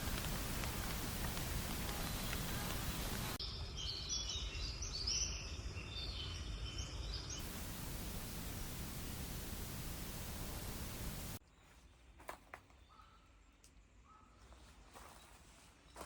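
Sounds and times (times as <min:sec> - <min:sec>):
steady hiss: 0:00.0 - 0:03.4, 0:07.4 - 0:11.4
songbirds chirping: 0:00.0 - 0:16.0.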